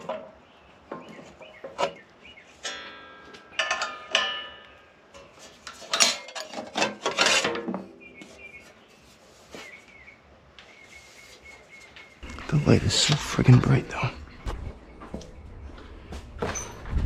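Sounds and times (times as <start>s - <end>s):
sheet metal clanking: 2.6s - 8.0s
scraping on sheet metal: 5.2s - 7.8s.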